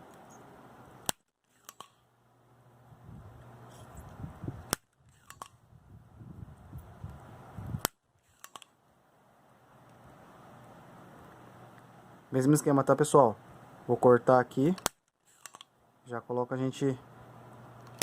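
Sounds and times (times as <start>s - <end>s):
sharp clicks: 1.0s - 2.0s, 4.6s - 5.6s, 7.8s - 8.8s, 14.6s - 15.8s, 17.8s - 18.0s.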